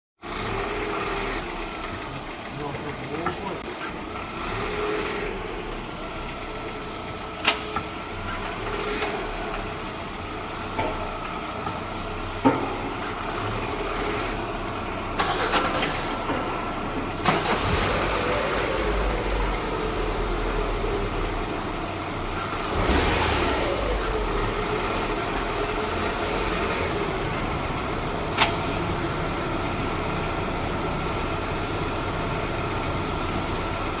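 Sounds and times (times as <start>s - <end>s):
car engine idling: 0.2s - 34.0s
clutch actuator squeaking: 3.8s - 5.3s.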